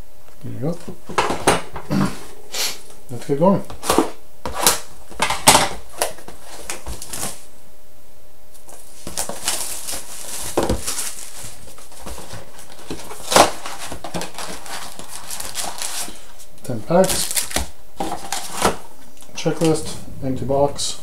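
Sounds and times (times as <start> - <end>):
steady hiss: 0.0 - 5.1, 16.0 - 21.0
cardboard and wrapper rustles: 3.8 - 7.5, 8.6 - 20.0.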